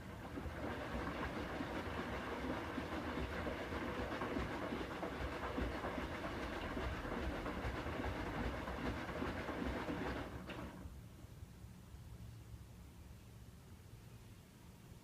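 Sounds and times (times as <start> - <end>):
washer-dryer running: 0.0 - 11.0.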